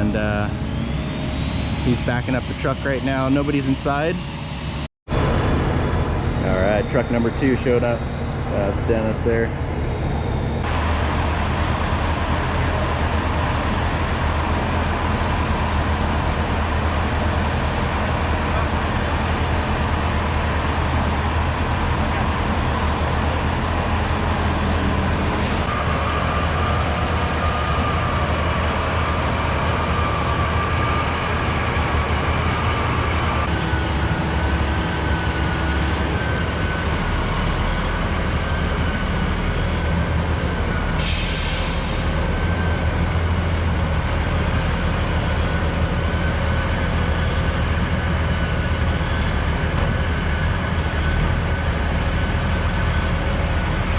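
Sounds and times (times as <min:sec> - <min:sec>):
thin whine: 0:00.0 - 0:11.0
diesel truck engines running: 0:00.0 - 0:53.9.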